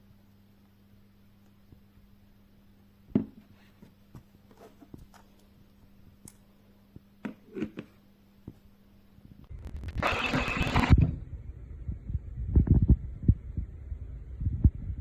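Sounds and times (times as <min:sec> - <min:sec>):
faint steady hum: 0:07.8 - 0:15.0.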